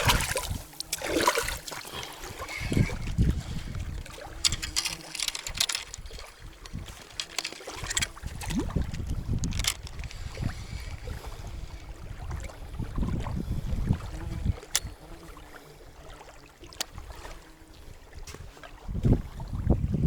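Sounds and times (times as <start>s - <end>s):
water splashing: 0.0s - 13.3s
wind buffeting microphone: 0.0s - 15.3s, 16.9s - 20.0s.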